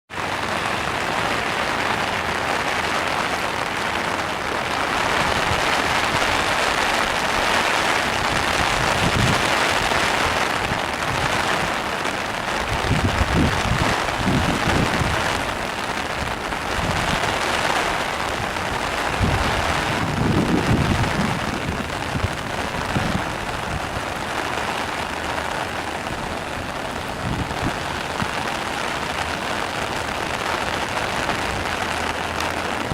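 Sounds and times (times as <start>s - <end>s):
floodwater rushing in creek: 0.1s - 32.9s
low rumbles: 10.2s - 32.9s.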